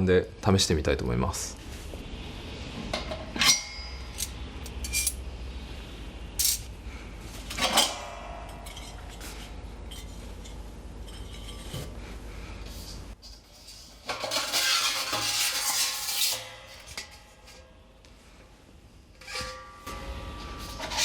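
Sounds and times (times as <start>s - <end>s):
metal parts clinking and clanking: 3.0s - 5.2s, 6.4s - 6.7s, 7.5s - 11.8s.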